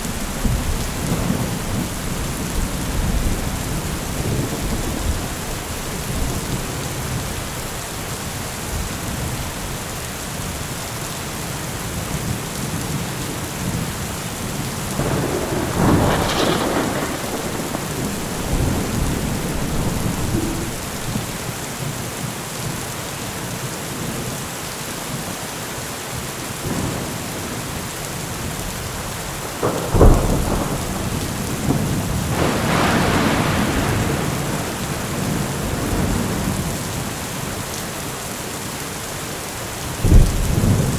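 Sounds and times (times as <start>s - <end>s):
thunder rumbling: 0.0s - 7.8s, 14.9s - 21.4s, 29.0s - 37.0s, 40.0s - 40.9s
heavy rain: 0.0s - 40.9s
thunder crack: 15.0s - 21.4s, 29.5s - 36.6s, 40.0s - 40.9s.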